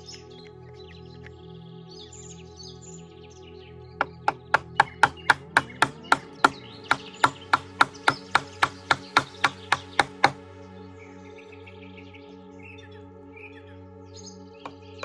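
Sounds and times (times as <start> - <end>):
background music: 0.0 - 15.0
hand tool chopping wood: 4.0 - 10.4, 14.7 - 15.0.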